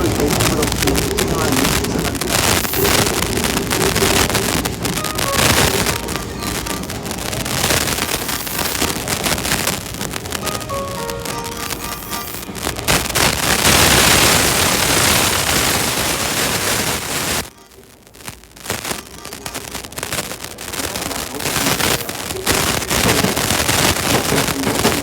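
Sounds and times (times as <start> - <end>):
electric trains rumbling past: 0.0 - 16.6.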